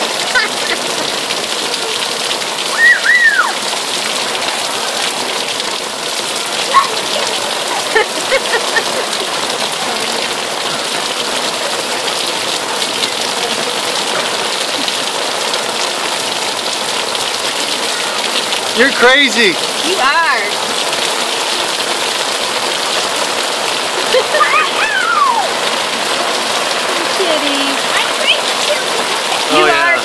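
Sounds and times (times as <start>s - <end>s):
heavy rain falling: 0.0s - 30.0s
high cry: 2.7s - 3.7s, 6.6s - 7.2s, 24.0s - 25.7s.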